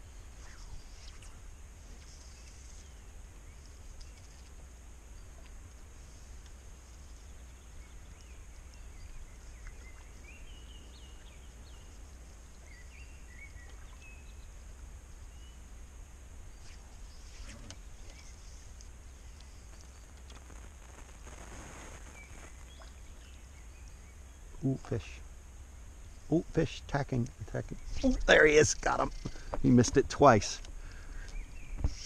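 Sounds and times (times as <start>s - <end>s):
steady high hiss: 0.0s - 32.0s.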